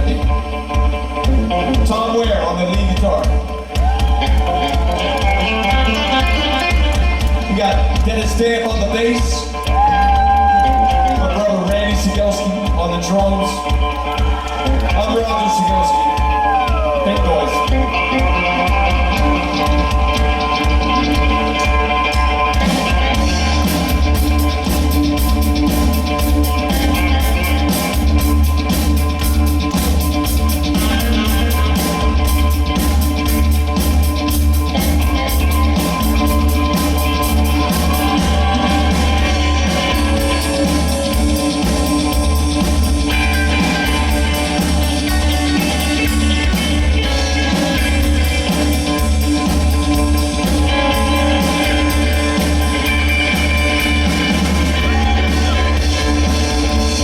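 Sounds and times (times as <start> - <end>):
bass guitar: 0.0 - 57.0
drum kit: 0.0 - 57.0
electric lead guitar: 0.0 - 57.0
person singing: 50.4 - 53.0, 53.8 - 57.0.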